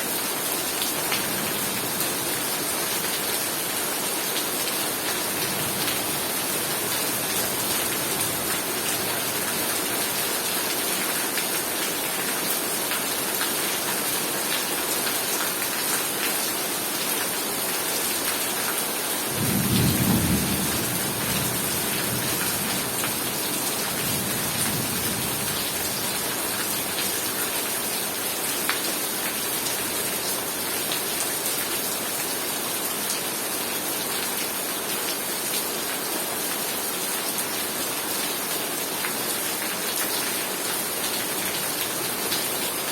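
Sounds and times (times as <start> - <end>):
heavy rain: 0.0 - 42.9
thunder rumbling: 19.4 - 22.8.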